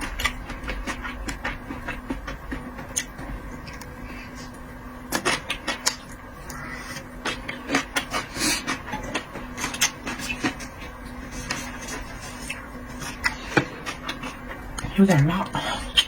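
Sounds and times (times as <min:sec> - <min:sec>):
chewing clicks and smacks: 0:00.0 - 0:04.0, 0:05.1 - 0:06.6
faint steady hum: 0:00.0 - 0:16.0.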